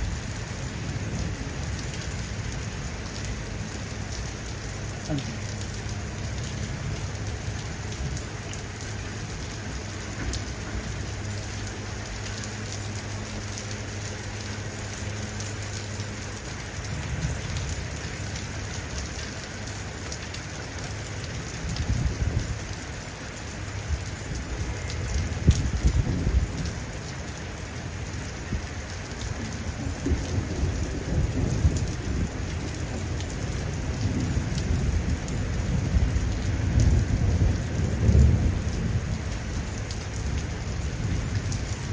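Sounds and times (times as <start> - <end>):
steady rain pouring: 0.0 - 41.9
thunder rumbling: 23.8 - 27.3, 28.0 - 41.9.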